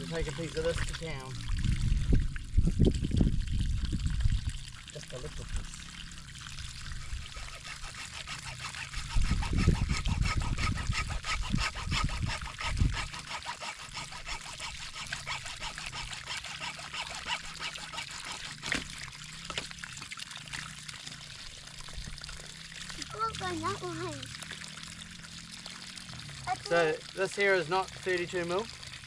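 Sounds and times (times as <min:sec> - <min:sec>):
water pouring from pipe: 0:00.0 - 0:29.0
low rumble: 0:01.3 - 0:04.8.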